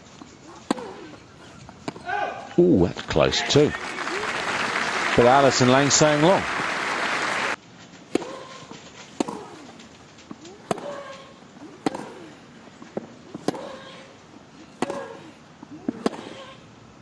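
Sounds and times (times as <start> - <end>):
tennis ball hit by rackets: 0.6 - 1.2, 8.1 - 12.3, 12.9 - 14.0, 14.7 - 16.6.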